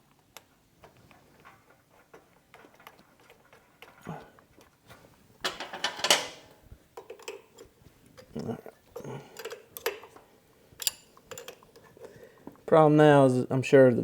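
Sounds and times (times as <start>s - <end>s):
metal clicks of hand tools: 9.4s - 10.2s, 10.8s - 11.8s.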